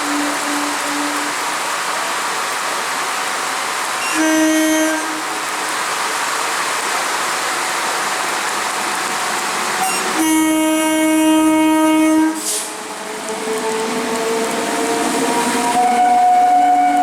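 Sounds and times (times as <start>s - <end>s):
train horn blast: 0.0s - 1.8s, 4.0s - 5.8s, 9.8s - 17.0s
higher train horn tone: 0.0s - 2.3s, 3.8s - 5.9s, 9.1s - 17.0s
electric train rushing past: 8.1s - 17.0s.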